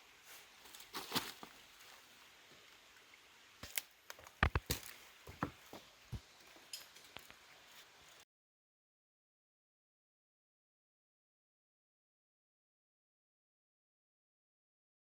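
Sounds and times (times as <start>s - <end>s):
faint steady hiss: 0.0s - 8.2s
sharp clicks and knocks: 3.6s - 5.6s.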